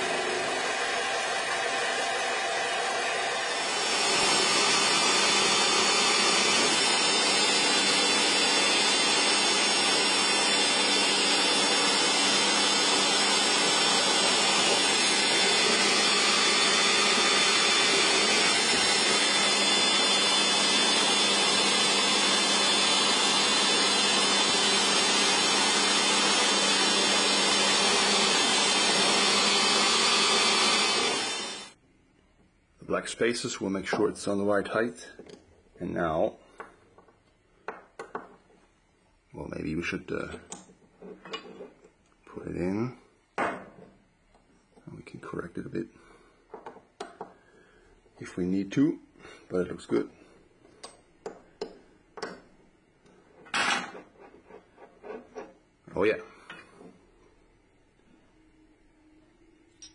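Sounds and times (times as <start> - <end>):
power tool running: 0.0 - 31.8.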